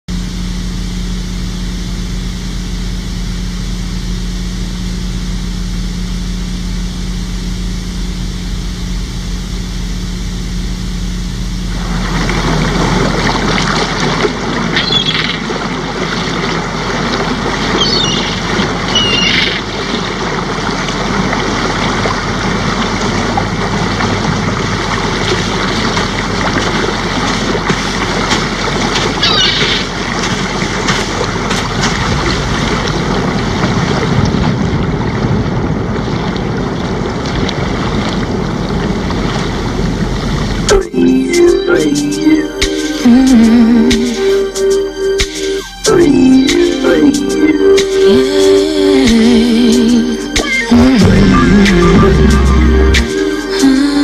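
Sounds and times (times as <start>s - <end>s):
steady low hum: 0.0s - 54.0s
short high chirps: 17.8s - 19.6s.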